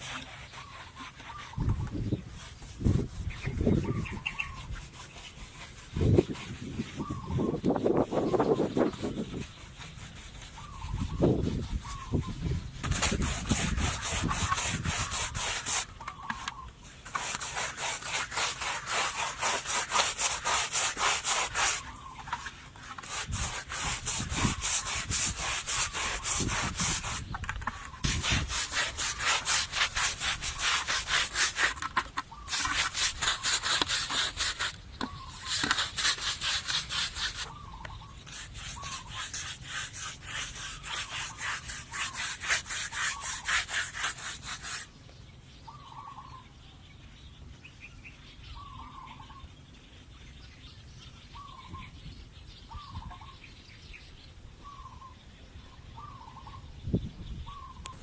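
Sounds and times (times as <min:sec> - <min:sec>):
rhythmic scraping on wood: 0:00.0 - 0:44.9.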